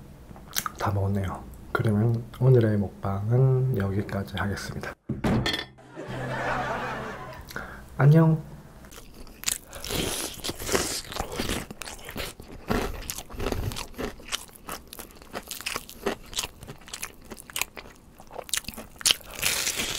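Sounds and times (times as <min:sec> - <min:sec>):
crisp crunching and chewing: 0:08.9 - 0:19.9.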